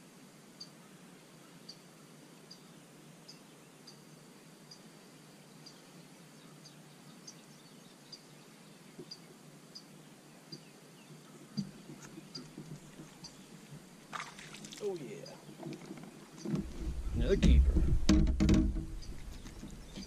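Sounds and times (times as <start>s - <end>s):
faint bird chirping: 0.5s - 14.0s, 14.6s - 18.0s, 18.8s - 20.0s
thump: 16.5s - 19.0s
low background rumble: 16.6s - 20.0s.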